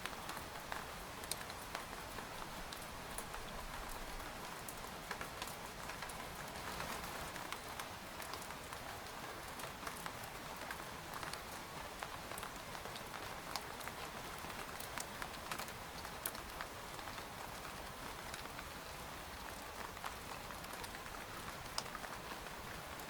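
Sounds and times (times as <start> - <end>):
rain on a tent: 0.0 - 23.0.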